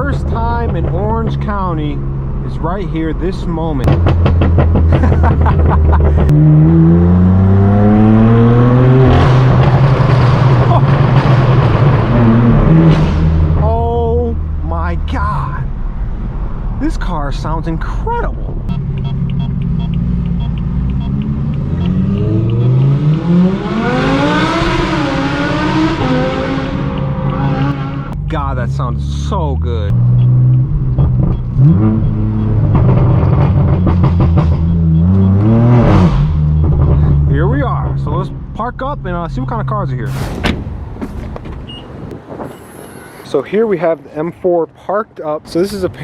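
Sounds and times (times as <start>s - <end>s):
car exhaust accelerating: 0.0s - 43.3s.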